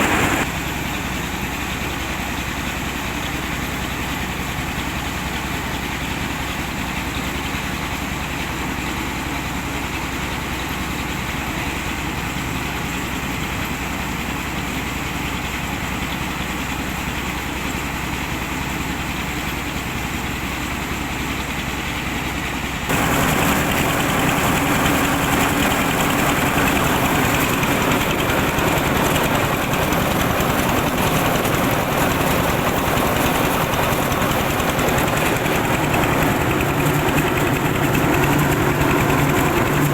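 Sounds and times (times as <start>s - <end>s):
engine driving machinery: 0.0s - 0.5s, 22.9s - 39.9s.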